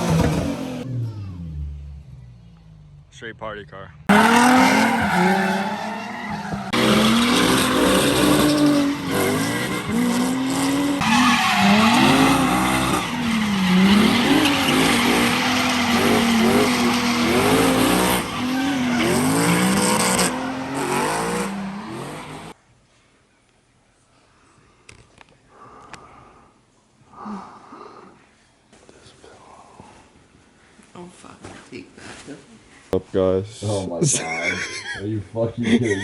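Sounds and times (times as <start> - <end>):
tyres squealing: 0.0 - 0.8, 4.1 - 22.5
car engine revving: 0.0 - 3.2, 4.0 - 22.6.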